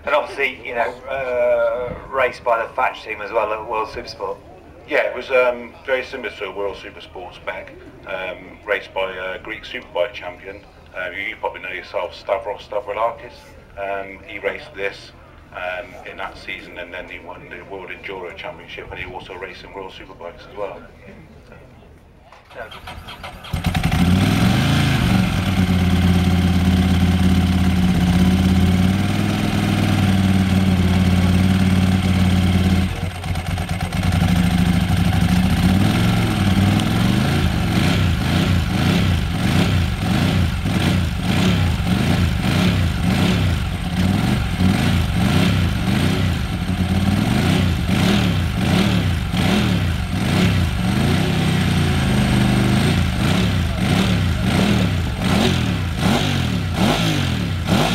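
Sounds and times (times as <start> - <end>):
motorcycle engine idling and revving: 22.5 - 57.9.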